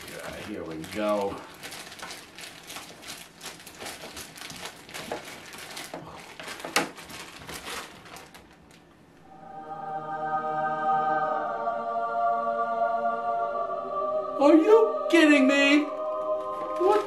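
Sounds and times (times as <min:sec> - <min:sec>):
packaging crinkling and rustling: 0:00.0 - 0:09.0
choir holding a chord: 0:09.2 - 0:17.0.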